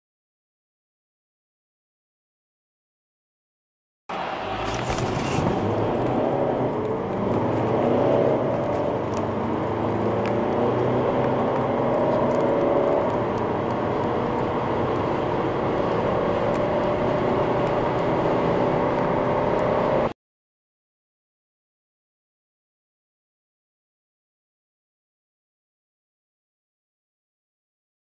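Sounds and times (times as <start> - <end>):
car engine accelerating hard: 4.1 - 20.2.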